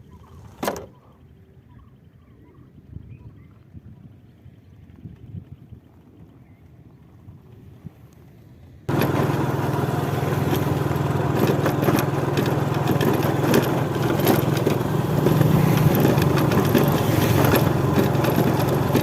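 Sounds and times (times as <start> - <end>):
motorcycle engine running: 8.9 - 19.0.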